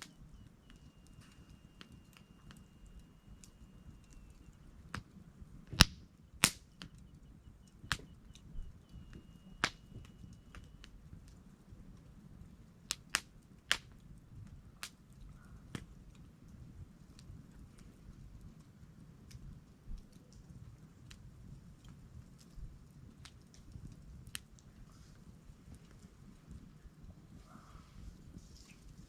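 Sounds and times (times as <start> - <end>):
faint high whistle: 0.0 - 4.8, 6.6 - 10.9
campfire crackling and popping: 0.0 - 29.0
low steady fire noise: 0.0 - 29.0.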